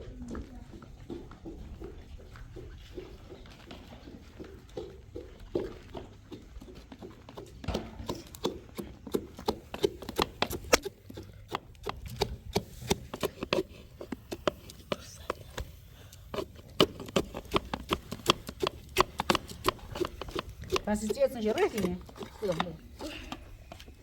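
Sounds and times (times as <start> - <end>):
sharp clicks and knocks: 7.6 - 24.0.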